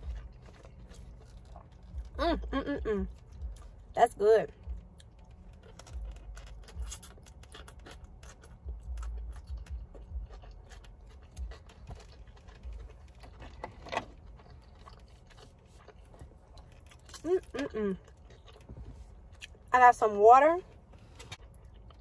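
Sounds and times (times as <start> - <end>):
soft low thumps: 1.9 - 5.0
wet chewing clicks: 4.6 - 19.7.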